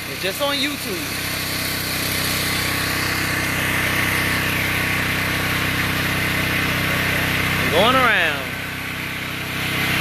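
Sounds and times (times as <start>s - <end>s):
generator engine running: 0.0s - 10.0s
high-pressure water spray hiss: 0.2s - 7.7s.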